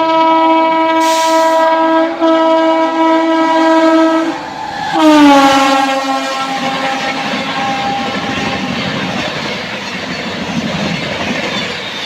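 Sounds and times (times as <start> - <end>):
train horn blasts: 0.0 - 9.5
train rushing past: 0.8 - 12.0.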